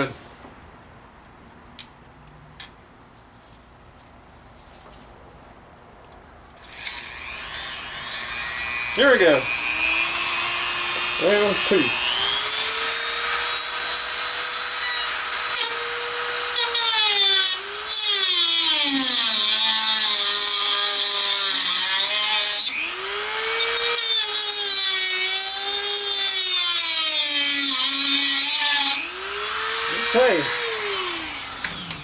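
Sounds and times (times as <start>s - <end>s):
rotary tool cutting metal: 6.6s - 32.0s.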